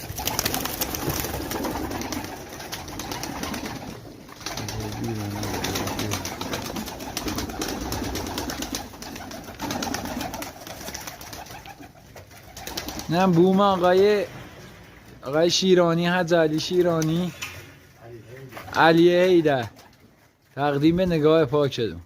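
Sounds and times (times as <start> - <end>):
pigeons cooing: 0.0 - 13.4.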